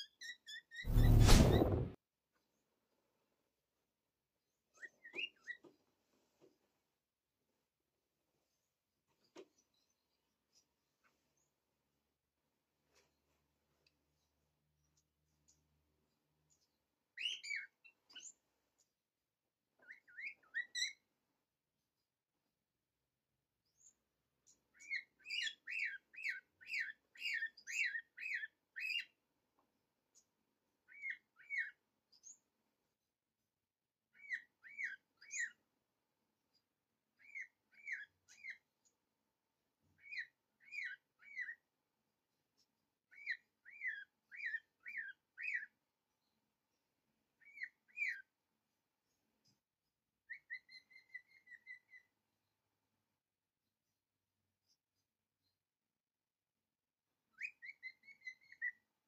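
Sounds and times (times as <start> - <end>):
small bird chirping: 0.0 - 1.8, 4.7 - 5.8, 14.8 - 19.0, 19.7 - 21.1, 23.6 - 29.2, 30.1 - 32.6, 34.1 - 35.8, 36.5 - 39.0, 40.0 - 41.7, 42.5 - 46.4, 47.4 - 48.4, 49.0 - 52.2, 57.2 - 59.0.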